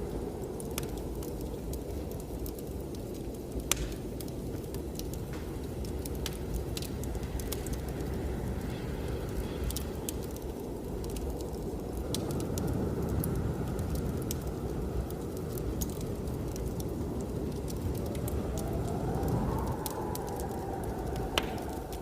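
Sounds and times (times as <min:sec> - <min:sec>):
blizzard wind rumbling: 0:00.0 - 0:22.0
wood fire crackling and popping: 0:00.0 - 0:22.0.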